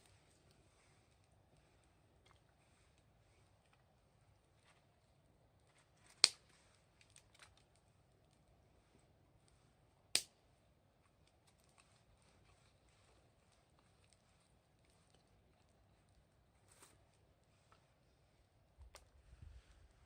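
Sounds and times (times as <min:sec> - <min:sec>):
wood fire crackling: 0:00.0 - 0:19.1
sharp pops of fire: 0:06.1 - 0:06.5, 0:10.1 - 0:10.4.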